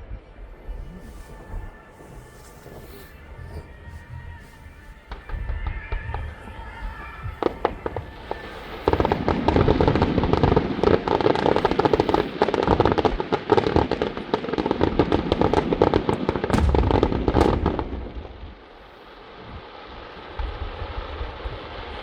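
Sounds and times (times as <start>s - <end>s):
fireworks banging: 0.6s - 18.8s.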